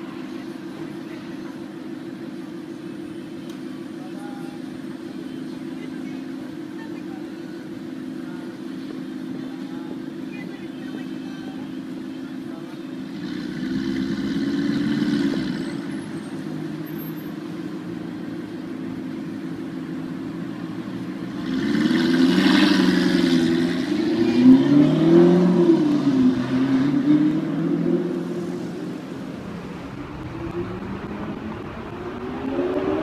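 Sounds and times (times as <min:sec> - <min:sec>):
car engine revving: 0:12.9 - 0:33.0.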